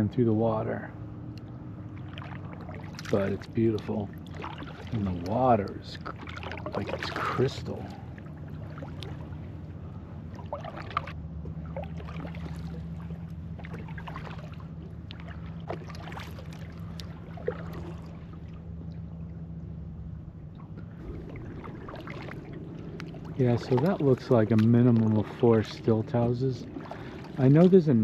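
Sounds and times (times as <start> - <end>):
steady low hum: 0.0 - 28.0
paddle splashes and drips: 0.4 - 28.0.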